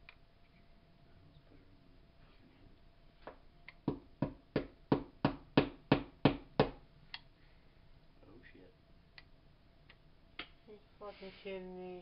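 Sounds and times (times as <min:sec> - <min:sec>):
hammer tapping sharp knocks: 0:03.8 - 0:06.8.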